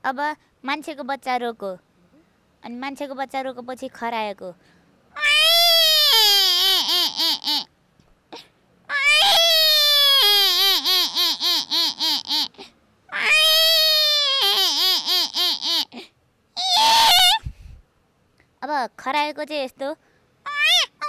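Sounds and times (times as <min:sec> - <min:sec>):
woman imitating baby crying: 0:05.2 - 0:07.7, 0:08.4 - 0:17.5, 0:20.5 - 0:21.0.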